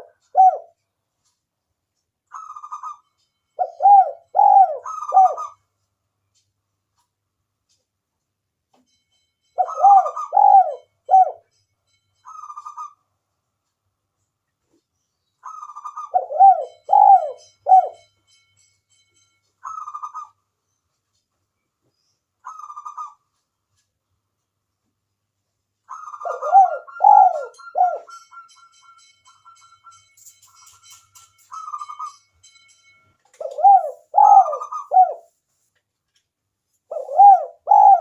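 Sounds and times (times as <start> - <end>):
dove cooing: 0.0 - 0.8, 3.6 - 5.6, 9.6 - 11.4, 15.4 - 18.0, 22.4 - 23.2, 25.9 - 28.3, 33.4 - 35.3, 36.9 - 38.0.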